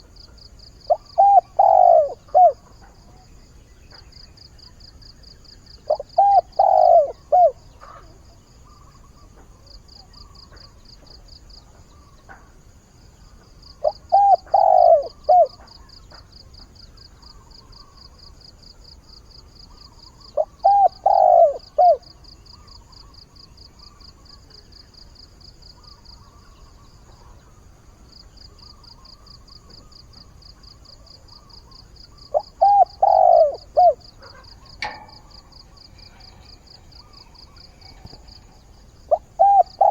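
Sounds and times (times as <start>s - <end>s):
dove cooing: 0.9s - 2.7s, 5.9s - 8.0s, 13.8s - 15.7s, 20.4s - 22.0s, 32.3s - 39.9s.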